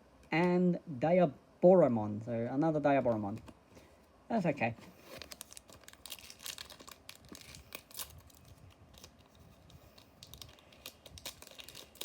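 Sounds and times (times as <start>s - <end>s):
foil pack crinkling and tearing: 5.1s - 12.0s.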